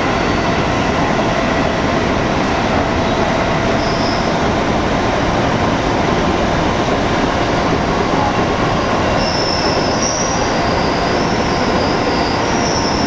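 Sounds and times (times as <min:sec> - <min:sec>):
train wheels rumbling on rails: 0:00.0 - 0:13.0
high-pitched wheel squeal: 0:03.8 - 0:04.4, 0:09.0 - 0:13.0.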